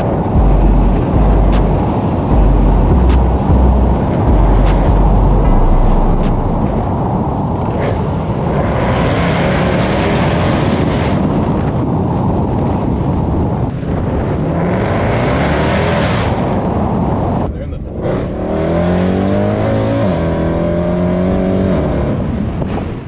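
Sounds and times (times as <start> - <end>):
car engine drone: 0.0 - 7.0
road and tyre noise: 0.0 - 23.0.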